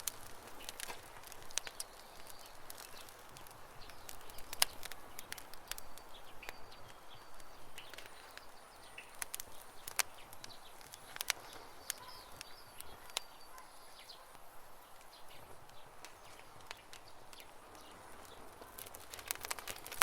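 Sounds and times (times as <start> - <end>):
campfire crackling and popping: 0.0 - 20.0
small birds chirping: 0.0 - 20.0.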